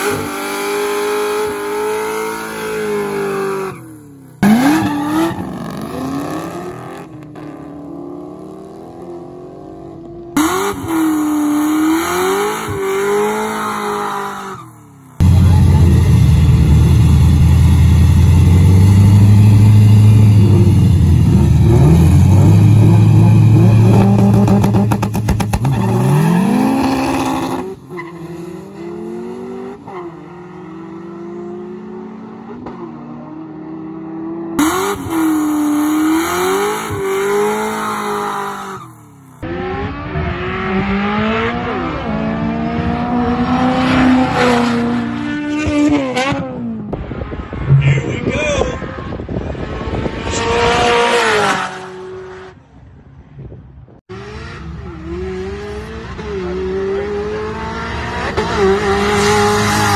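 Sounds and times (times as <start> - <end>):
car engine revving: 0.0 - 14.6, 15.2 - 52.6, 54.1 - 59.9
car launching with rising note: 10.4 - 32.8.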